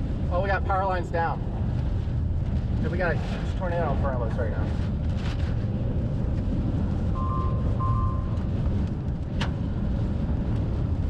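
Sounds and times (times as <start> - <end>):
vehicle rumbling in motion: 0.0 - 11.0
short electronic beeps: 7.2 - 8.4.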